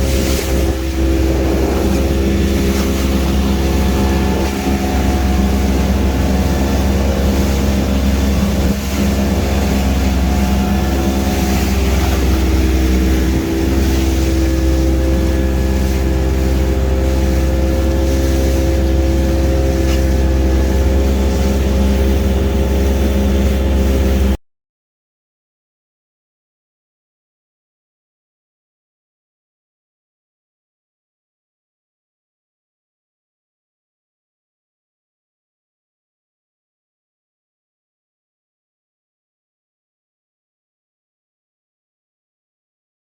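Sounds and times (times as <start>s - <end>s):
boat engine droning: 0.0s - 24.4s.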